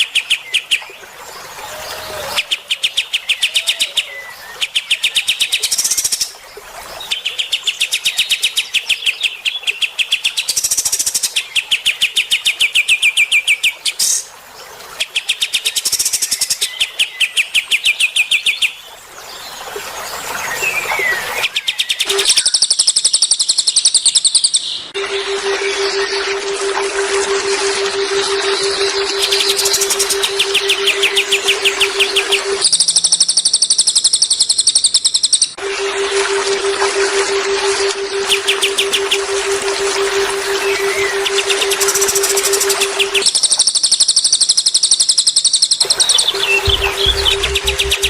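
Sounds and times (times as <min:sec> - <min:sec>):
higher thinner bird trill: 0:25.0 - 0:34.4, 0:45.8 - 0:48.0
songbird trilling: 0:28.5 - 0:35.6, 0:39.9 - 0:48.0.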